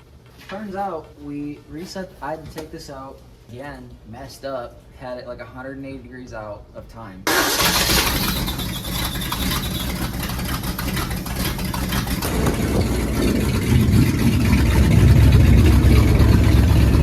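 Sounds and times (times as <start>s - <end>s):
truck engine running: 7.3s - 17.0s.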